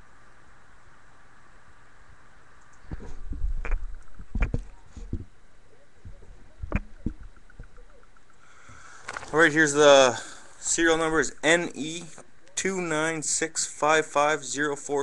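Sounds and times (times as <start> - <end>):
cards rustling: 8.8 - 9.8.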